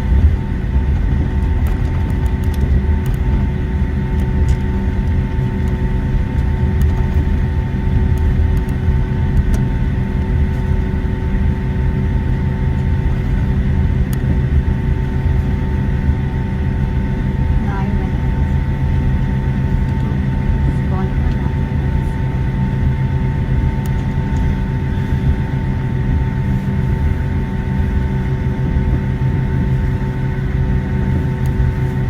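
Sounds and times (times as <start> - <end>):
jet engines idling: 0.0 - 32.0.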